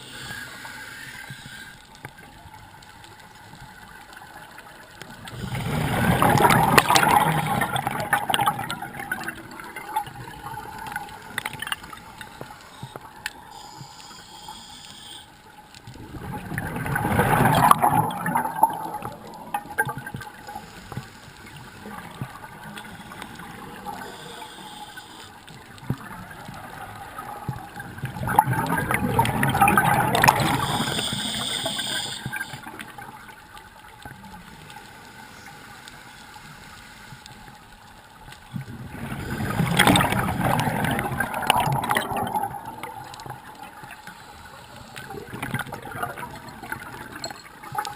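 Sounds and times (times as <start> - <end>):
underwater water noise: 0.0 - 47.9
diver's exhaled bubbles rushing: 5.3 - 11.4, 16.0 - 20.3, 26.0 - 31.0, 38.7 - 43.5.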